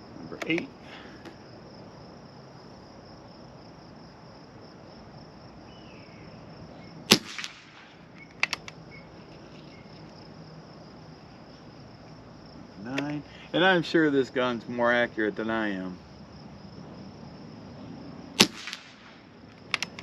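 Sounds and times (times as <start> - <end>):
crickets chirping: 0.0 - 20.0
air rifle shot: 7.1 - 8.1, 18.4 - 19.3
quick clicks: 7.4 - 8.8, 18.5 - 20.0.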